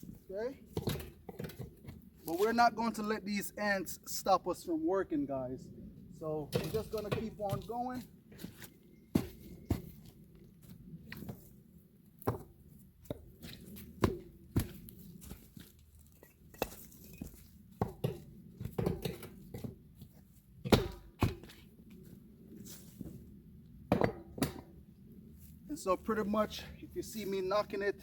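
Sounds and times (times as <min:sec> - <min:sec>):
bricks knocking and thudding: 0:00.7 - 0:02.0, 0:16.2 - 0:19.8, 0:20.6 - 0:21.6, 0:23.9 - 0:24.8.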